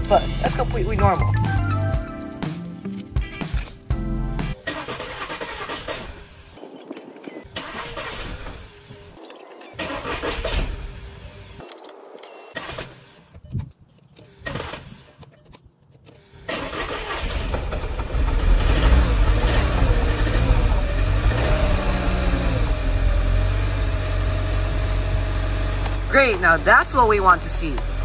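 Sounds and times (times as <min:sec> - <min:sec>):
car engine cranking: 0:04.5 - 0:28.0
car engine running: 0:17.3 - 0:28.0.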